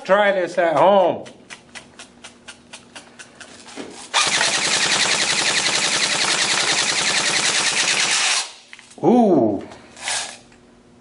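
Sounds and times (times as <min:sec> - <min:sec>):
airsoft gun full-auto burst: 0:04.1 - 0:08.6.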